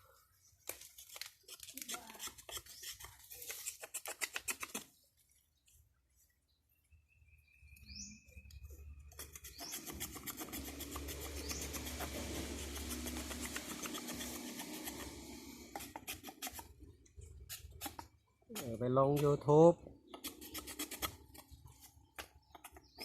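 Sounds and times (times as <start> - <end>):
hand tool rasping wood: 1.5 - 4.8, 9.1 - 16.8, 17.4 - 19.4, 20.1 - 23.0.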